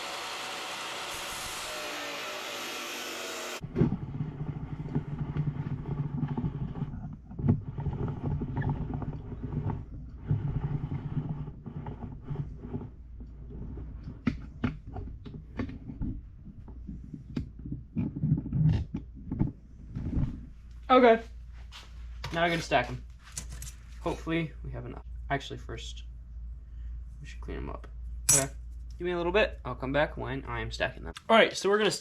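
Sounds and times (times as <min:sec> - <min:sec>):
chop saw running: 0:00.0 - 0:03.6
low steady hum: 0:03.6 - 0:31.3.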